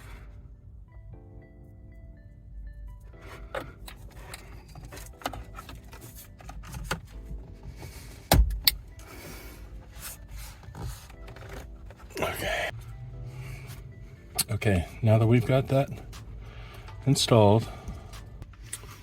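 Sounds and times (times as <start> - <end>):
wires rubbing and rustling: 8.8 - 12.5.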